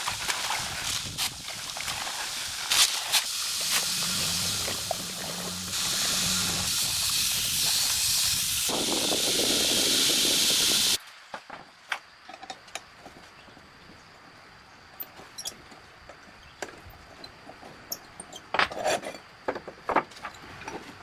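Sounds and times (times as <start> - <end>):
loud steady hissing: 0.0 - 11.0.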